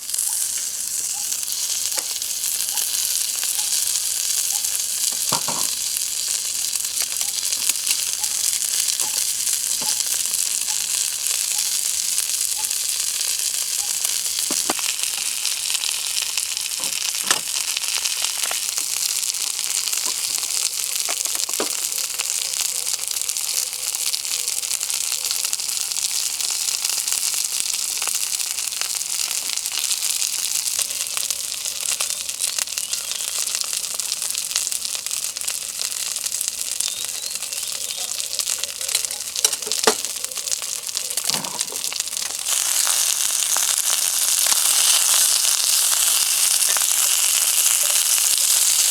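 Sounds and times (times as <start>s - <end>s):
food sizzling in a pan: 0.0s - 48.9s
sharp clicks and taps: 14.4s - 14.9s.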